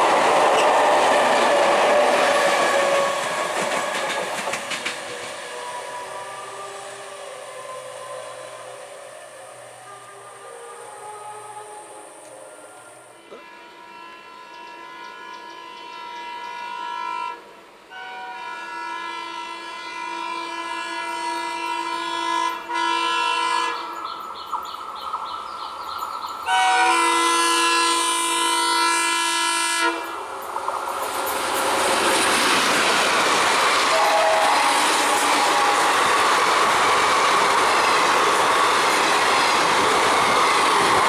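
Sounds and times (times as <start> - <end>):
train wheels on track: 0.0 - 16.8, 20.6 - 41.0
locomotive horn blasts: 5.4 - 8.8, 9.4 - 24.0, 26.5 - 30.2, 33.9 - 36.3.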